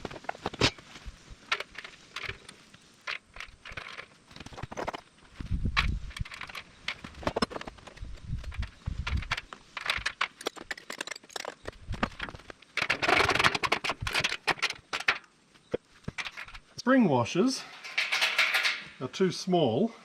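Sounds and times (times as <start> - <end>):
metal nuts and bolts clicking: 1.5 - 5.0, 6.1 - 15.3, 17.6 - 19.0.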